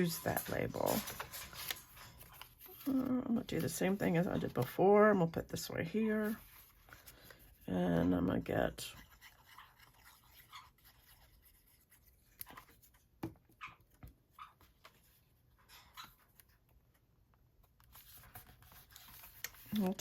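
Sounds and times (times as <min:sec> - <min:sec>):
paper rustling and tapping: 0:00.0 - 0:04.8.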